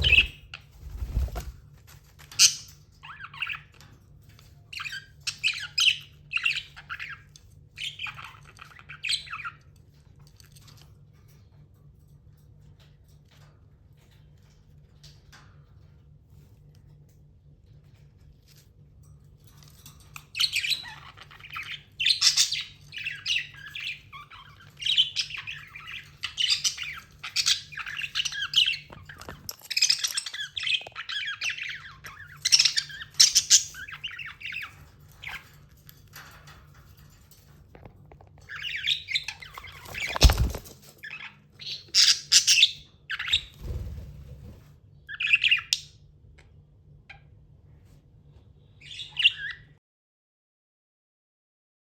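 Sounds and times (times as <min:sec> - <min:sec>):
budgerigar chirping and squawking: 0:00.0 - 0:00.4, 0:41.1 - 0:43.5.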